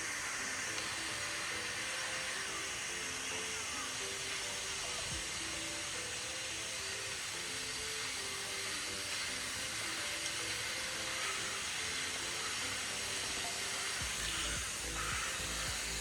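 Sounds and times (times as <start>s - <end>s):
background music: 0.0s - 16.0s
steady rushing hiss: 0.0s - 16.0s.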